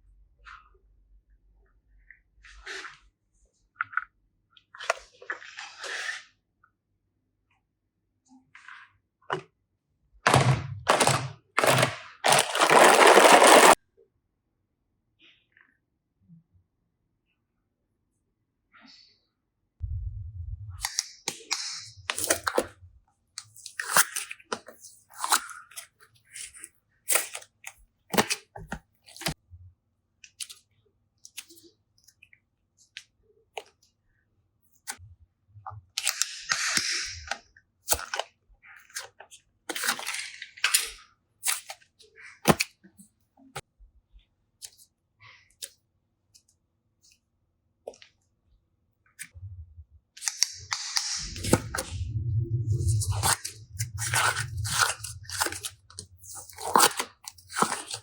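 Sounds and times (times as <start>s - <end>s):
slime squelching: 49.1s - 58.0s.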